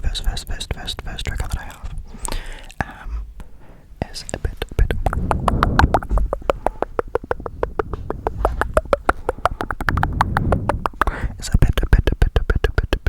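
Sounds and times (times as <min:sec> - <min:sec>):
low rumble: 0:04.6 - 0:12.2
rapid sharp tapping: 0:04.6 - 0:13.0.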